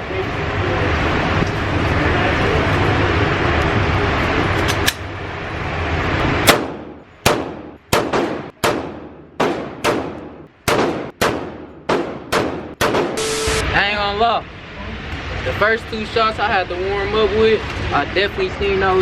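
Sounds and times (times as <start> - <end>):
loud rushing noise: 0.0 - 14.6
pistol shots echoing: 6.5 - 13.2.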